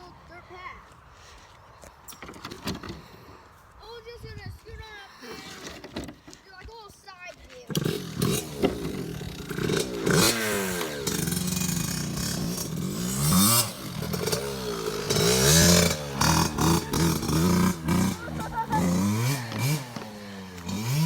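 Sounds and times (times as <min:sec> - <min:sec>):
dirt bike engine revving: 0:07.7 - 0:21.0.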